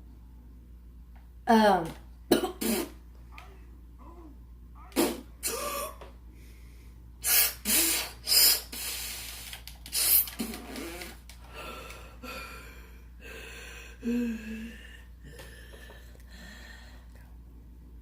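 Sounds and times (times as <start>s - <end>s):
person gasping and breathing hard: 10.5s - 17.1s.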